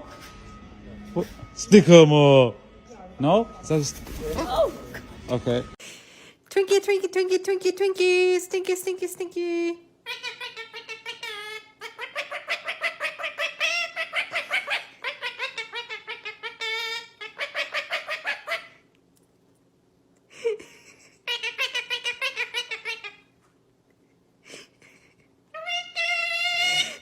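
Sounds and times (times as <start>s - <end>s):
parrot chattering: 10.0s - 18.8s, 21.2s - 23.3s, 25.5s - 27.0s.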